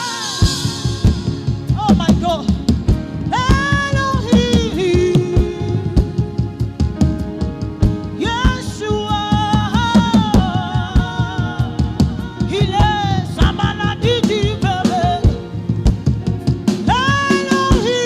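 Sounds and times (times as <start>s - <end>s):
person singing gospel: 0.0s - 6.7s, 8.0s - 15.9s, 16.8s - 18.0s
held keyboard chords: 0.0s - 18.0s
steady drum beat: 0.0s - 18.0s.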